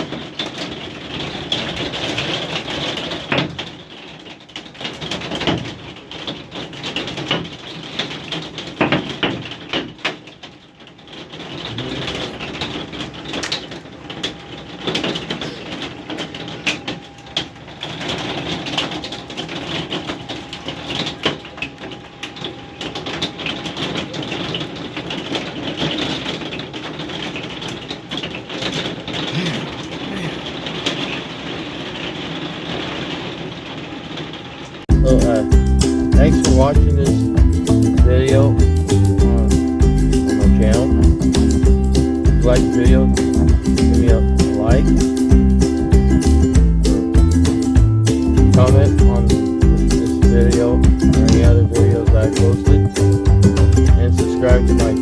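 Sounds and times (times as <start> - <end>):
hailstones pelting down: 0.0 - 36.1.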